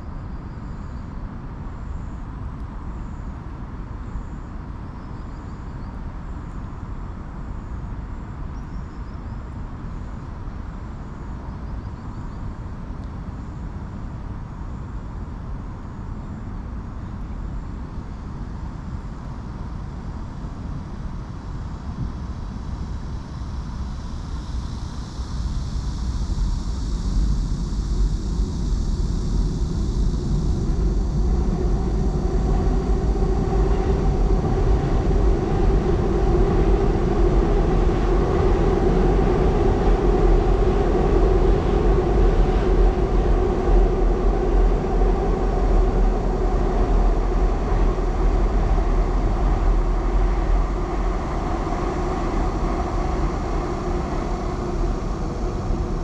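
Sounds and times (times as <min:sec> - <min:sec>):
constant low rumble: 0:00.0 - 0:56.0
train rumbling over a bridge: 0:15.8 - 0:56.0.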